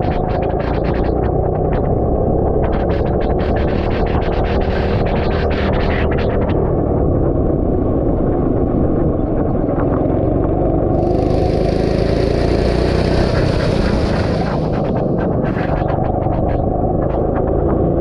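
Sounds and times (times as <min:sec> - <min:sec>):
go-kart engine running: 0:07.9 - 0:18.0
high hiss: 0:11.0 - 0:15.6.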